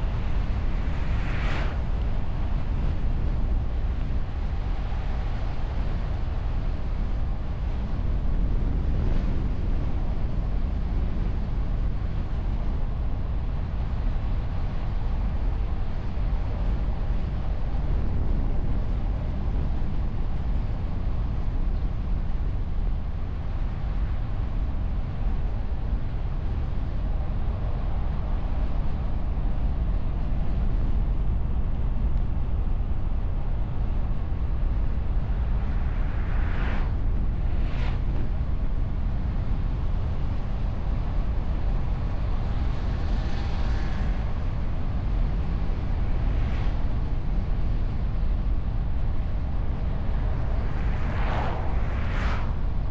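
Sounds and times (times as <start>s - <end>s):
brief whooshes: 50.8s - 52.6s.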